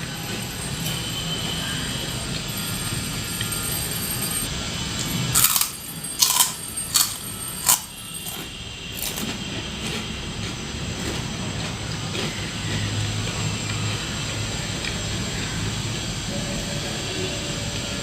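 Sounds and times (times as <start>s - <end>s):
crunchy snack chewing: 5.3s - 13.8s.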